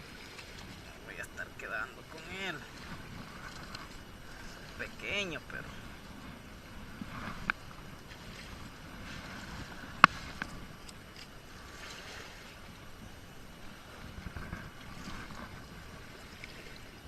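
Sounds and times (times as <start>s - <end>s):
moving water: 0.0s - 17.0s
wind: 0.0s - 17.0s.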